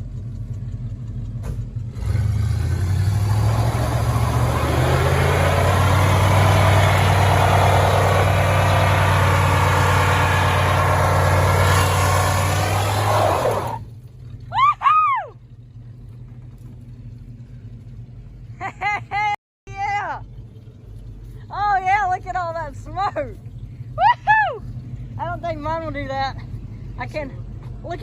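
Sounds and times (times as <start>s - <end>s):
truck engine revving: 1.3s - 13.9s.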